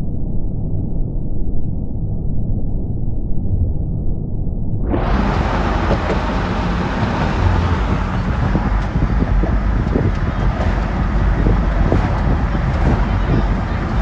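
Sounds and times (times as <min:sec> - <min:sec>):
strong wind blowing: 0:04.8 - 0:14.0
wind buffeting microphone: 0:04.9 - 0:14.0.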